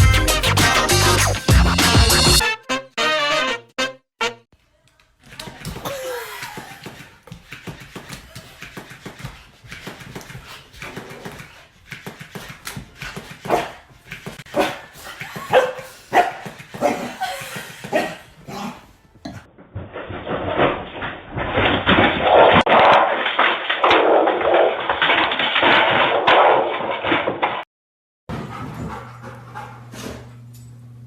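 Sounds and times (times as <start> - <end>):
dog barking and yipping: 13.4 - 18.8.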